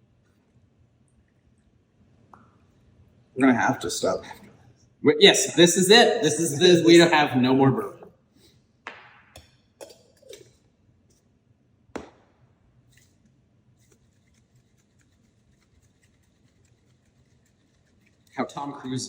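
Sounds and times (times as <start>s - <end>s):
glassware and utensils clinking: 9.8s - 10.6s.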